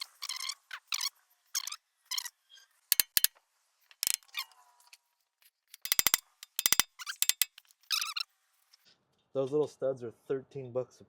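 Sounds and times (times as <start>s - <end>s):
metal tool clicks and clinks: 2.9s - 3.3s, 3.9s - 4.4s, 5.7s - 8.2s.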